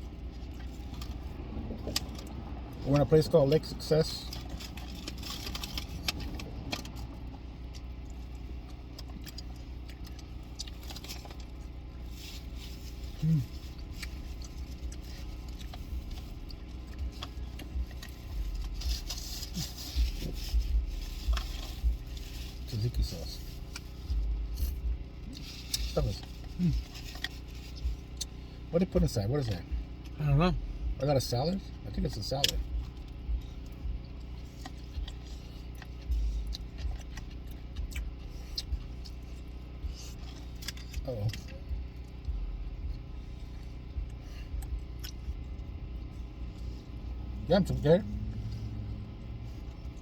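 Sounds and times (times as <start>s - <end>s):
eating from a takeout container: 0.0s - 30.2s, 31.2s - 50.0s
steady low hum: 0.0s - 50.0s
steady low rumble: 0.0s - 50.0s
soft low thumps: 20.0s - 22.3s, 24.0s - 25.3s, 32.0s - 35.3s, 36.0s - 39.0s, 39.7s - 47.4s.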